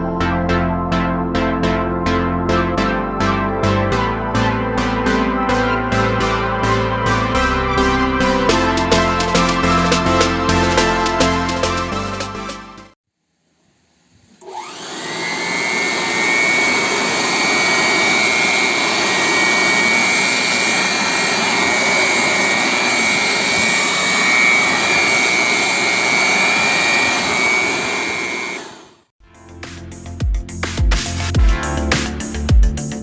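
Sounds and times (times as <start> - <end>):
blower motor whining: 14.4 - 29.1.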